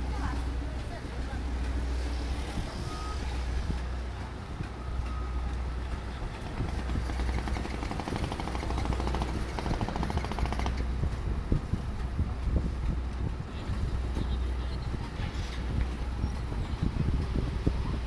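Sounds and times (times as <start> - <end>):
engine humming with clatter: 0.0 - 18.0
fast even rattle: 6.6 - 10.8.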